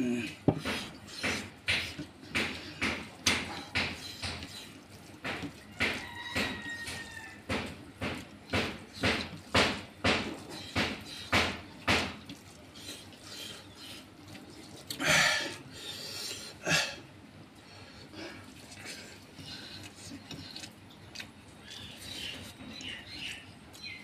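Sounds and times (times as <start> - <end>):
wet smacking chews: 10.4 - 16.6, 18.0 - 24.0.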